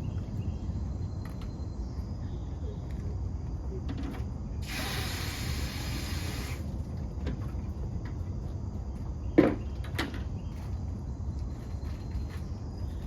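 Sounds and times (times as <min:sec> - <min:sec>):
steady hiss: 0:04.6 - 0:06.8.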